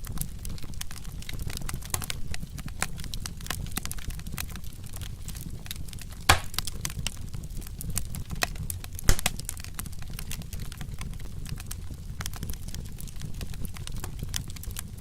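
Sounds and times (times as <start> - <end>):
wood fire crackling: 0.0 - 15.0
loud fire pops: 0.8 - 10.7.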